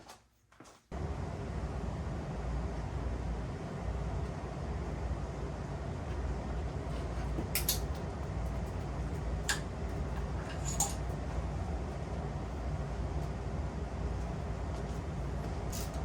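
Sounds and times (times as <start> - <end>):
metal tools clinking: 10.4 - 11.0, 15.7 - 16.0.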